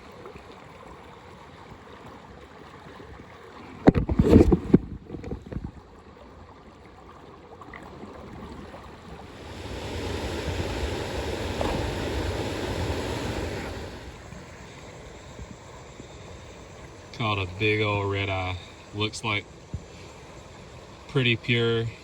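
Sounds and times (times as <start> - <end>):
river water rushing: 8.6 - 15.3.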